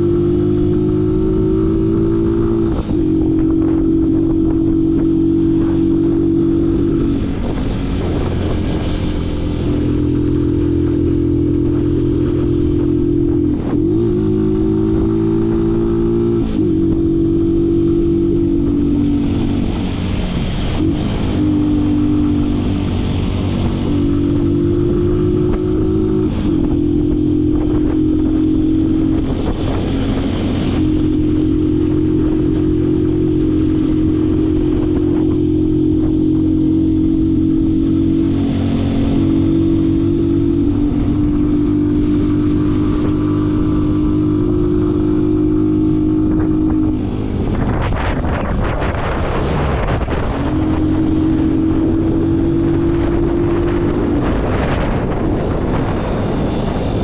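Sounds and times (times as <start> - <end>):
motorcycle engine while riding: 0.0 - 57.0
rushing noise: 0.0 - 57.0.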